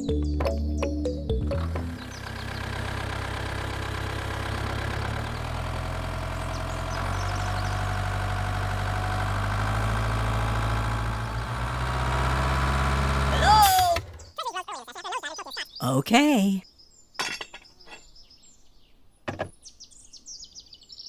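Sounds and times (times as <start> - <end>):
engine idling: 1.5 - 14.1.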